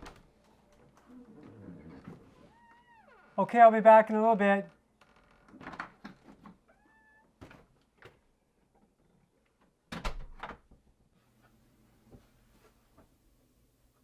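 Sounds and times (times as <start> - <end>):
door squeak: 1.9 - 3.4.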